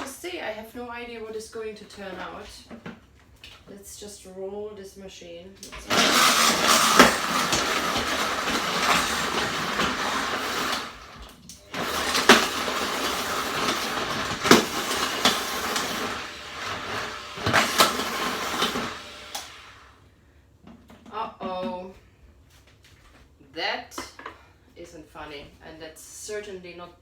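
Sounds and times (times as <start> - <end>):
food processor blending: 5.6 - 20.0.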